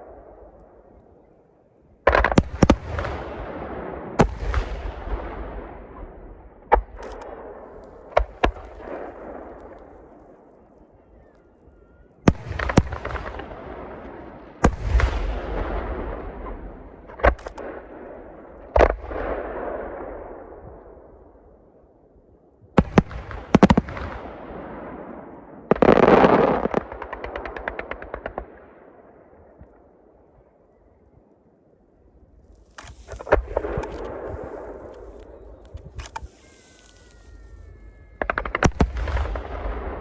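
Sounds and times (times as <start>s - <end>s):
firework crackling: 25.8s - 28.6s, 32.4s - 40.0s
firework shells bursting: 25.9s - 28.6s, 32.4s - 39.9s.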